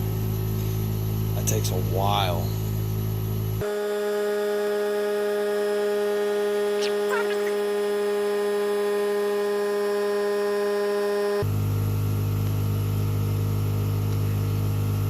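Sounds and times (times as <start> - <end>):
high falling squeak: 6.8 - 7.6.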